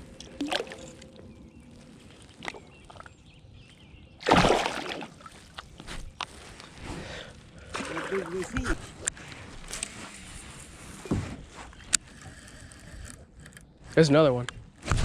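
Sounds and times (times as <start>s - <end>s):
water sloshing around kayak: 0.1s - 6.8s
loud splash: 4.2s - 5.2s.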